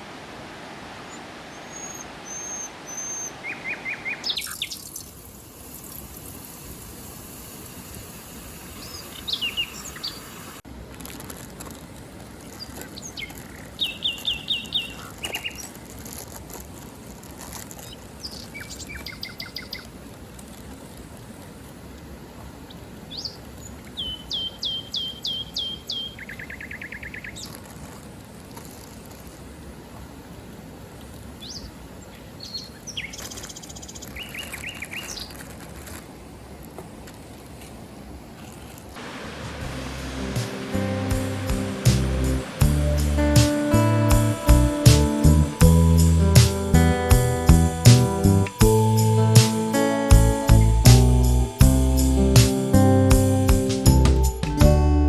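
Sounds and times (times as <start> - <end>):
wild birds chirping: 0.8 - 6.1, 8.7 - 10.6, 12.4 - 15.9, 17.8 - 19.9, 22.7 - 27.6, 31.4 - 35.4, 39.0 - 54.4
steady background rush: 39.0 - 54.6.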